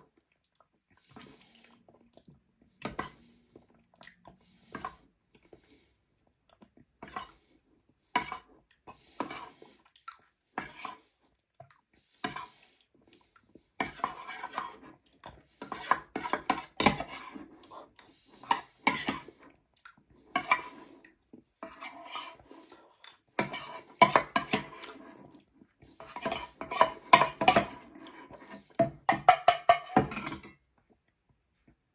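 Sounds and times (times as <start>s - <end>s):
spoon clinking and scraping dish: 13.8s - 14.9s, 15.6s - 17.5s, 18.4s - 19.3s, 20.4s - 20.9s, 21.6s - 22.4s, 23.4s - 25.0s, 26.0s - 30.5s.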